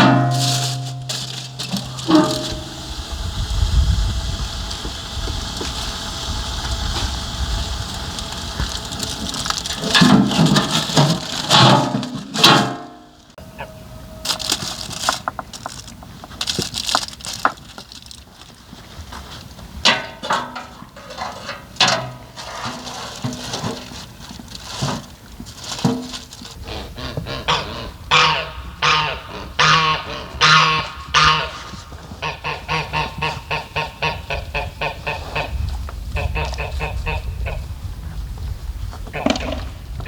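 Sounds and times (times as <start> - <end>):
geese honking: 0.0 - 15.5, 26.6 - 35.6, 36.2 - 37.7.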